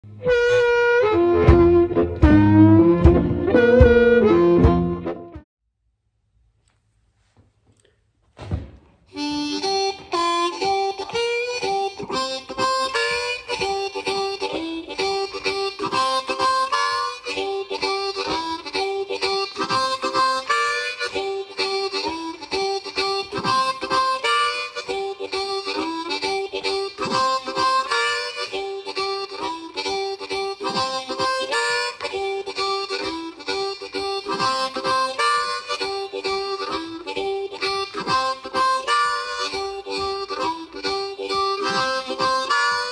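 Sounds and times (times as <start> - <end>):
blues harmonica riff: 0.1 - 5.4, 9.1 - 42.9
short thump: 8.3 - 9.0.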